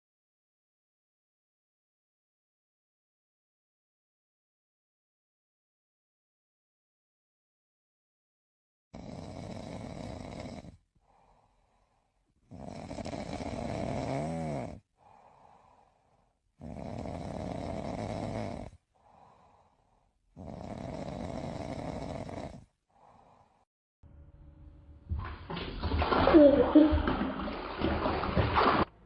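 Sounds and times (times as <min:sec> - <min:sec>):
pet snoring: 0:09.0 - 0:10.8, 0:12.5 - 0:15.2, 0:16.6 - 0:19.4, 0:20.4 - 0:23.3
faint breath: 0:11.0 - 0:12.3, 0:15.0 - 0:16.4, 0:18.9 - 0:20.2, 0:22.9 - 0:23.7.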